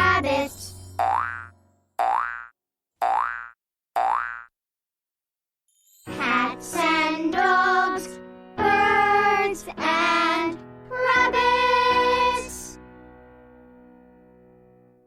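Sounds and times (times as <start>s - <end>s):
children's music jingle: 0.0s - 2.2s, 5.7s - 12.8s.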